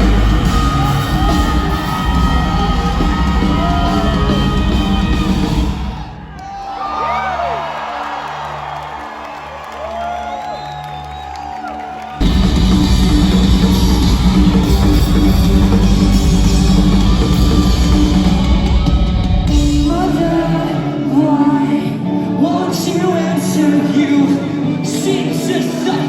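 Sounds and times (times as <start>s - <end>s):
person singing: 0.0s - 5.5s, 12.3s - 26.0s
bass guitar: 0.0s - 6.1s, 12.2s - 21.6s
electric guitars: 0.0s - 6.3s, 11.0s - 26.0s
drums: 0.0s - 7.2s, 11.2s - 21.4s.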